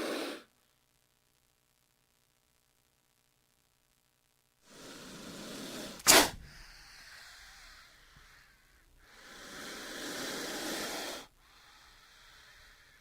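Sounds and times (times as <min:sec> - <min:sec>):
snake hissing: 0:00.0 - 0:00.5, 0:04.6 - 0:13.0
sharp loud crack: 0:06.0 - 0:06.6.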